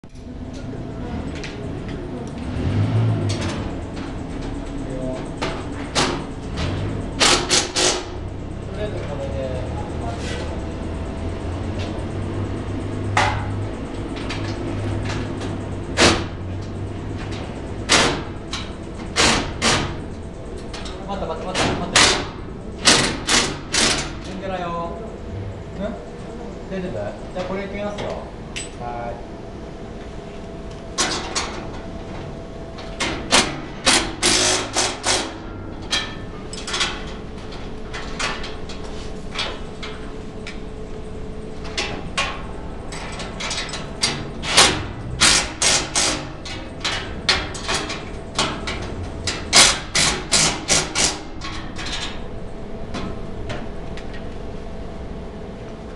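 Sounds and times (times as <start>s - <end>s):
steady hum: 0.0s - 55.9s
metal duct knocking and clanking: 41.6s - 52.2s.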